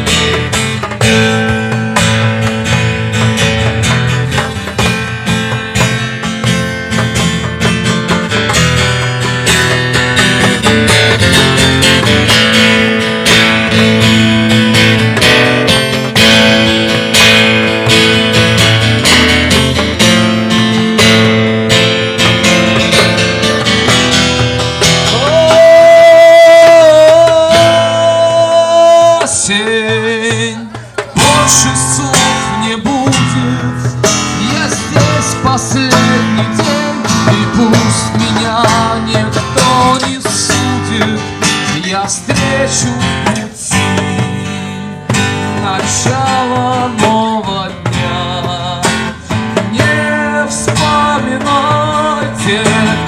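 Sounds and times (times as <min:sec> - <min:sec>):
rock guitar strumming: 0:00.0 - 0:53.0.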